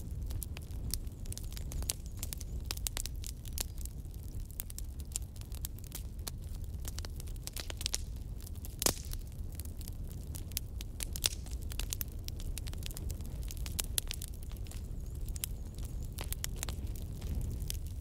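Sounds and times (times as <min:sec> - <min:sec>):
low rumble of flame: 0:00.0 - 0:18.0
wood fire crackling: 0:00.0 - 0:18.0
sharp pops and snaps: 0:08.7 - 0:09.3, 0:11.1 - 0:12.0.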